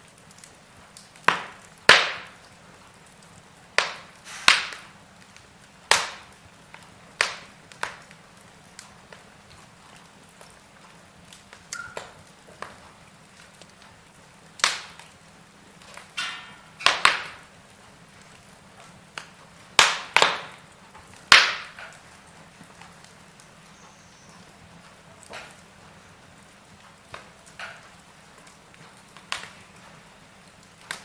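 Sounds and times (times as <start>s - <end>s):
burning logs popping: 0.0s - 31.0s
faint steady hiss: 0.0s - 31.0s
wood fire crackling: 0.0s - 31.0s
short hiss: 4.2s - 4.8s.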